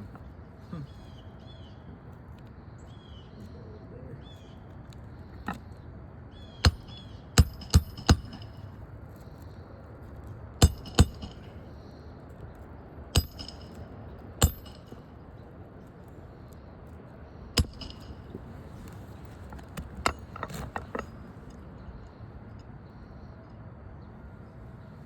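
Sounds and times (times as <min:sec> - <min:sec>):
metal tools tapping on roof: 0:19.2 - 0:21.2.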